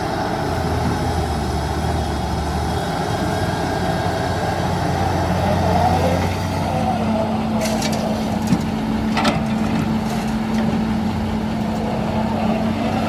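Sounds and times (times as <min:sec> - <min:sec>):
heavy machine engine running: 0:00.0 - 0:13.0.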